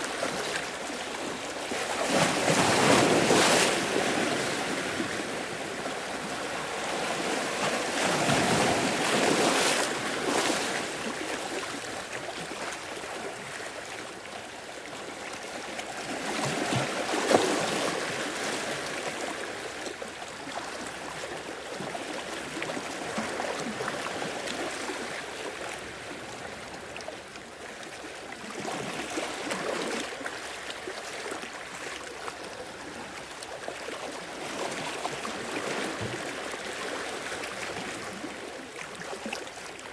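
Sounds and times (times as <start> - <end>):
sea waves breaking on shore: 0.0 - 14.1.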